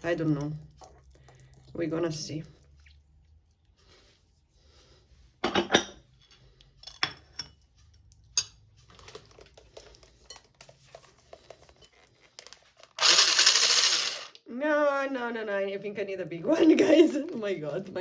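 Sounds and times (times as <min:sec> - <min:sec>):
pots and utensil clattering: 0:05.4 - 0:07.6.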